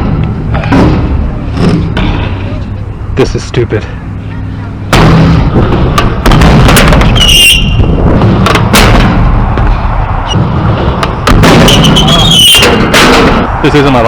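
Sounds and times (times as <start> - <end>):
high squeal: 7.1 - 7.9, 11.6 - 12.8.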